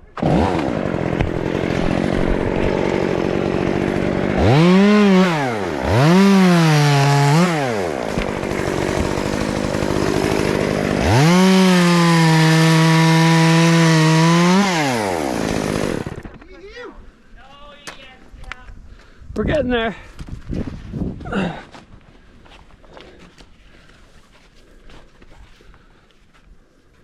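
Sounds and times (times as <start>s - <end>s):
chainsaw revving and cutting wood: 0.0s - 16.3s.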